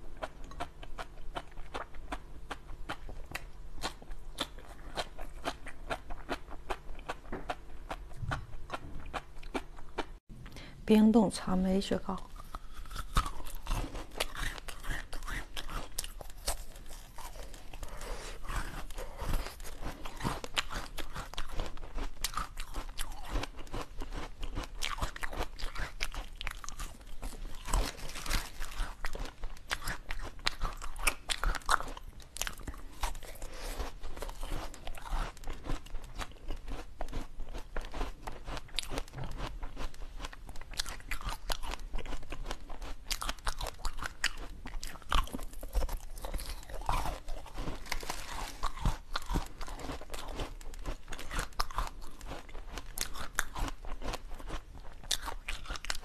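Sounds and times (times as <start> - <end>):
crunching frozen strawberries: 12.0 - 56.0.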